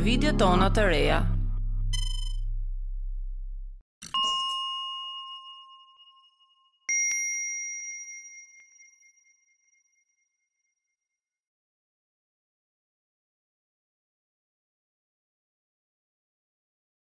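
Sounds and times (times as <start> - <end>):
bell-like chimes: 4.1 - 10.4.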